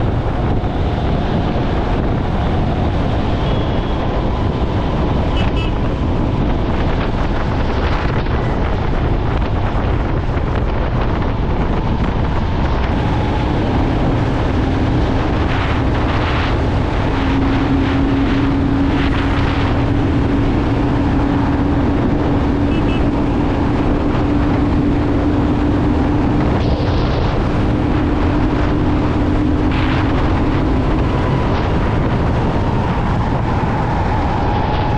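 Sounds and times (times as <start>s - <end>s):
low engine drone: 0.0s - 34.9s
motorcycle riding: 0.0s - 34.9s
wind buffeting microphone: 0.0s - 34.9s.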